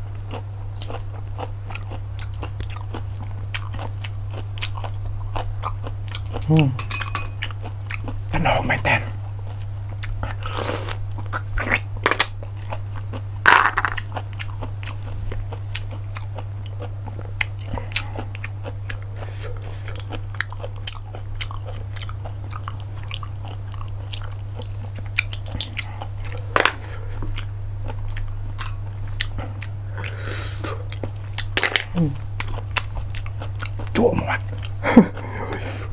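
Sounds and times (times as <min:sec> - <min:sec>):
low steady hum: 0:00.0 - 0:35.9
chewing and mouth sounds: 0:00.2 - 0:35.9.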